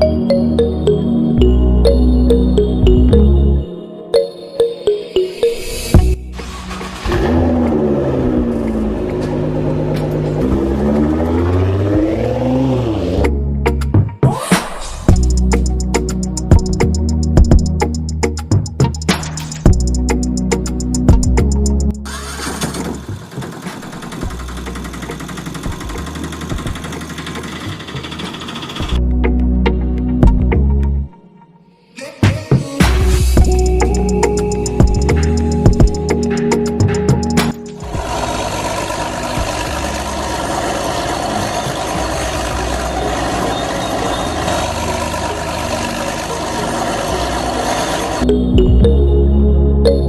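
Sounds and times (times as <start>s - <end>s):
music with steady beat: 1.9s - 3.4s, 15.1s - 21.9s, 30.0s - 30.7s, 32.2s - 38.0s, 48.3s - 49.1s
vehicle engine running steadily: 6.0s - 13.5s, 19.7s - 29.0s, 37.8s - 48.8s
small motor rattling: 22.0s - 29.0s, 37.8s - 48.2s.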